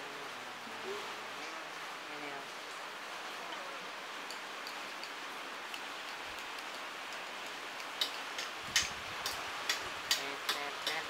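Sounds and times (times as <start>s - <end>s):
heavy rain hissing: 0.0s - 11.0s
sharp clicks: 7.4s - 11.0s.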